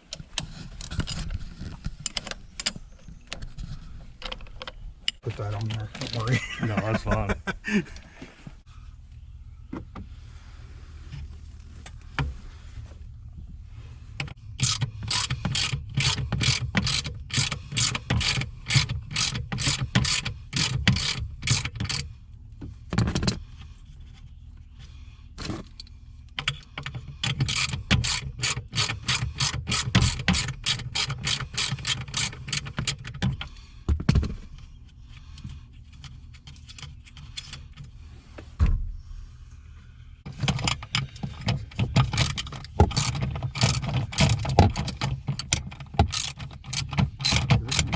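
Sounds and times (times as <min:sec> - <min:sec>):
socket ratchet clicking: 0:14.6 - 0:22.1, 0:26.4 - 0:33.2, 0:40.6 - 0:47.9.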